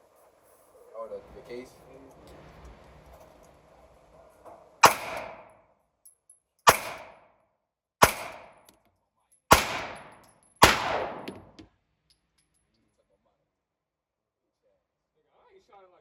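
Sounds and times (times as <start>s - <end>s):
gunshots ringing out: 4.8s - 5.6s, 6.7s - 7.3s, 8.0s - 8.7s, 9.5s - 11.6s.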